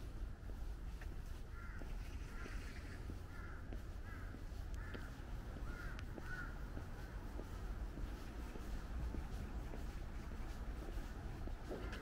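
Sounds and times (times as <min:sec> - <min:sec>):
steady low rumble: 0:00.0 - 0:12.0
bird calling: 0:01.5 - 0:06.6.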